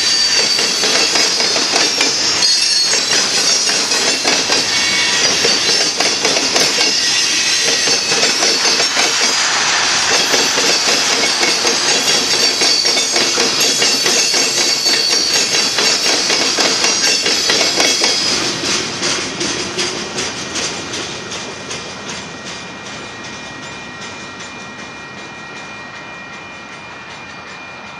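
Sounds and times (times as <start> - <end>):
high-pitched wheel squeal: 0.0 - 18.4
wheels clacking over rail joints: 0.3 - 22.6.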